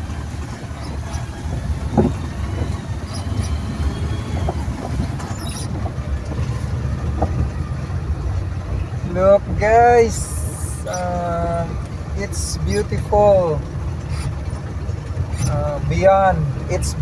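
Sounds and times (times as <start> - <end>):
knocks and rattles: 0.0 - 9.8
truck engine and road noise: 0.0 - 17.0.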